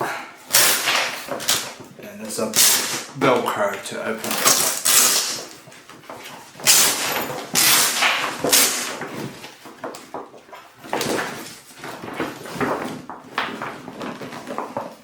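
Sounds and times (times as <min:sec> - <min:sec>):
velcro tearing: 0:00.5 - 0:01.8, 0:02.4 - 0:03.1, 0:04.3 - 0:05.6, 0:06.6 - 0:09.0
stiff bag material rustling: 0:06.4 - 0:09.7.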